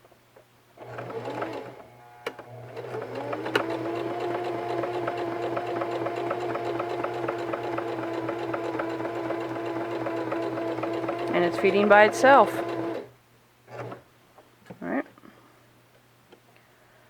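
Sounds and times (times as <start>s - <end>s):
sewing machine motor hum: 0.8s - 14.1s
sewing needle ticking: 2.8s - 13.1s.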